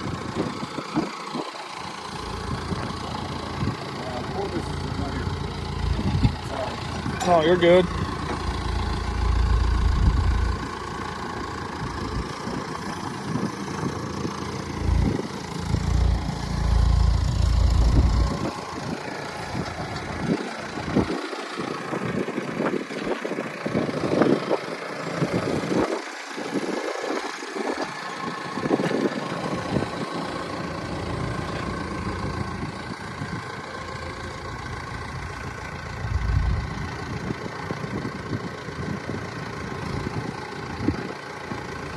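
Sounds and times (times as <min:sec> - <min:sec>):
engine idling: 0:00.0 - 0:41.9
wind buffeting microphone: 0:05.8 - 0:07.2, 0:07.9 - 0:10.7.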